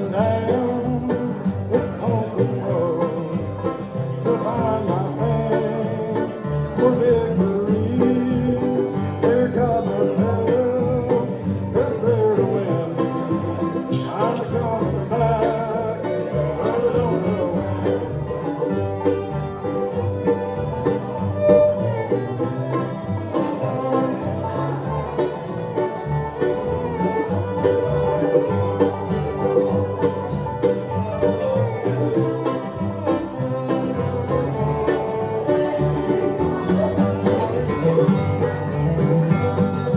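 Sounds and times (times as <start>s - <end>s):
bluegrass band playing: 0.0s - 39.9s.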